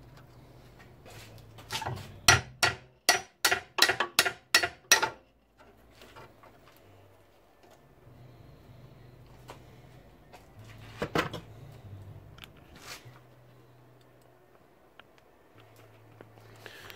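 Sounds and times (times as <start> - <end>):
hammer striking metal: 2.3 - 5.2.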